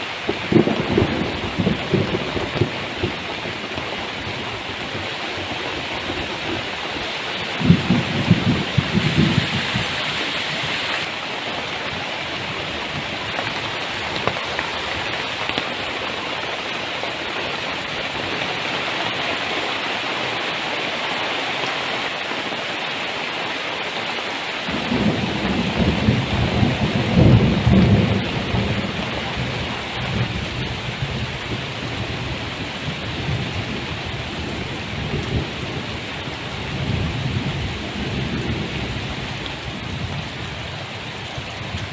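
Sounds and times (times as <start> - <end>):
heavy rain pouring: 0.0 - 41.9
thunder rumbling: 0.2 - 11.2, 24.7 - 40.7.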